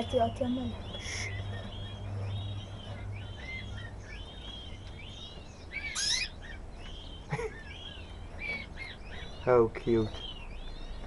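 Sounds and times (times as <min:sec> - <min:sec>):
small birds chirping: 0:00.0 - 0:11.0
harsh bird call: 0:05.8 - 0:06.6.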